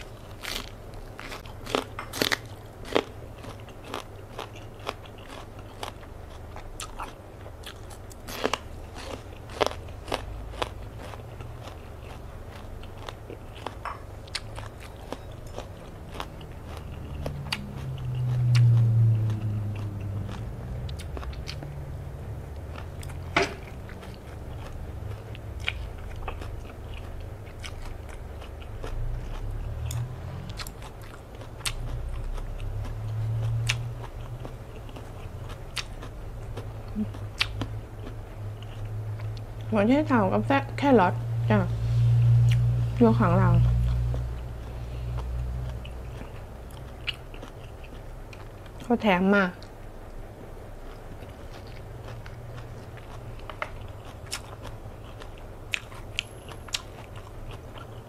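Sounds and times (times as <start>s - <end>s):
biting and wet chewing: 0.0s - 41.2s, 42.2s - 58.0s
low hum: 7.3s - 48.8s.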